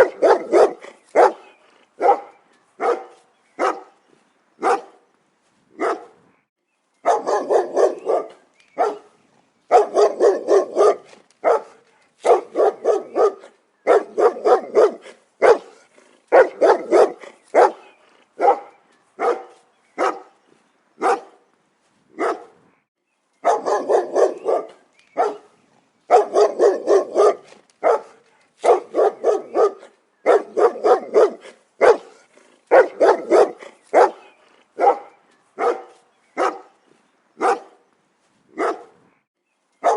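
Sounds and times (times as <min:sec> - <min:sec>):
dog barking: 0:00.0 - 0:03.9, 0:04.6 - 0:05.0, 0:05.8 - 0:06.2, 0:07.0 - 0:09.1, 0:09.7 - 0:20.3, 0:21.0 - 0:21.4, 0:22.2 - 0:22.6, 0:23.4 - 0:25.5, 0:26.1 - 0:36.8, 0:37.4 - 0:37.8, 0:38.6 - 0:39.0.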